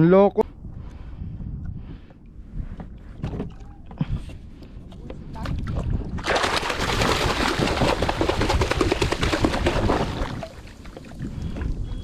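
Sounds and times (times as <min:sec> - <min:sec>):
water splashing and churning: 0:05.4 - 0:12.0.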